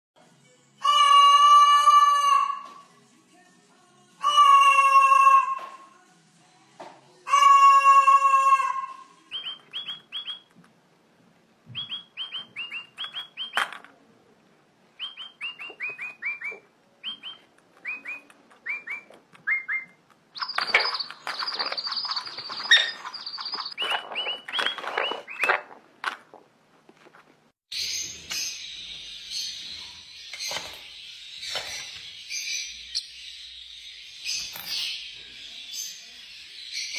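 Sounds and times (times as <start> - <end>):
parrot rasping call: 0.8 - 2.6, 7.3 - 9.2
parrot chirping: 7.3 - 10.6, 11.7 - 13.7, 15.0 - 25.7.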